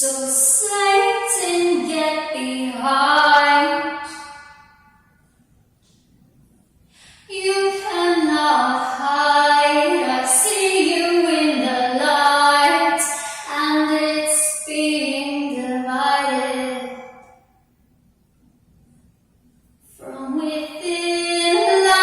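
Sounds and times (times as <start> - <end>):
woman singing slow melody: 0.0 - 4.4, 7.3 - 17.2, 19.9 - 22.0.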